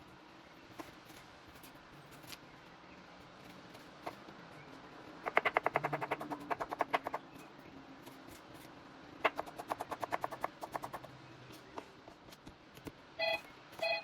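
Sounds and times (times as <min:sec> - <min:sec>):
rapid sharp clicking: 0:05.3 - 0:07.2, 0:09.3 - 0:11.1.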